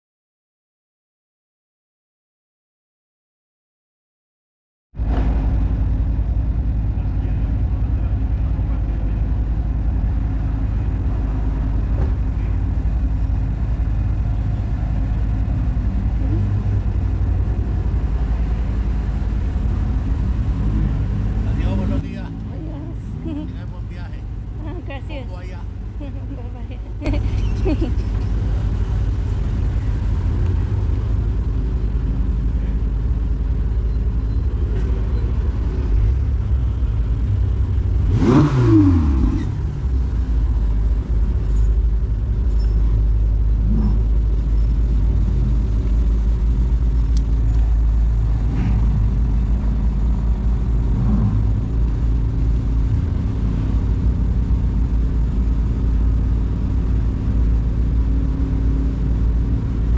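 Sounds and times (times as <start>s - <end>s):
car engines rumbling: 5.0s - 59.9s
engine revving: 11.9s - 25.6s, 34.2s - 59.9s.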